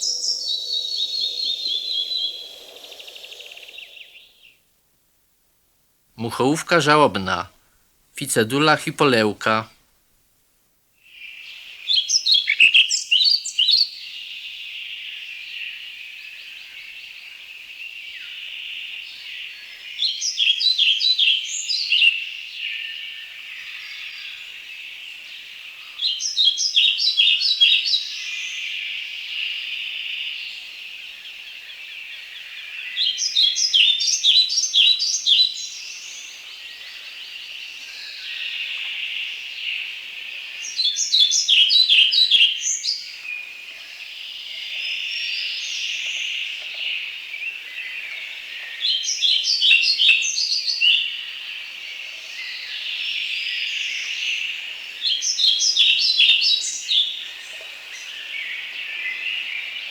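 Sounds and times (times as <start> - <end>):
flycatcher singing: 0.0 - 4.3
high-pitched background hiss: 0.0 - 4.5, 8.2 - 9.7.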